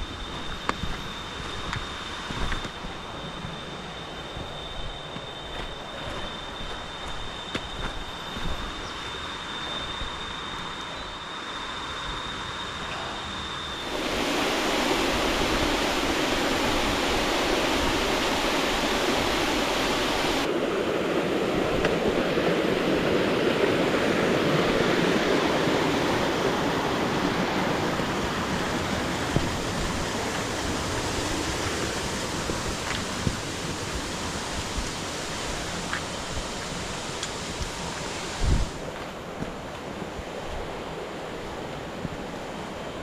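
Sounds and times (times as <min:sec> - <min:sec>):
waterfall rushing: 0:13.8 - 0:38.7.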